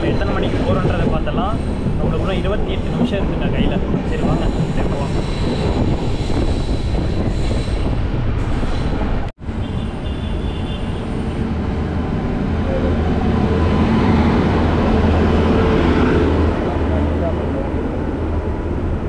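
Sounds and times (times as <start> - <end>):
train wheels rumbling on rails: 0.0 - 9.3.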